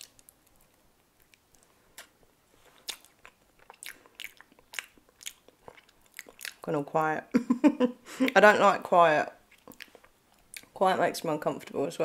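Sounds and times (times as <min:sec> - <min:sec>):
mouth clicks chewing banana: 0:00.0 - 0:06.7, 0:09.5 - 0:10.8.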